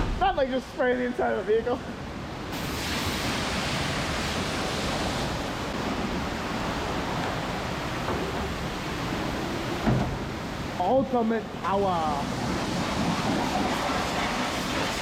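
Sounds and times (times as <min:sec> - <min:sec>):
water spraying hiss: 0:02.5 - 0:10.9, 0:11.7 - 0:15.0.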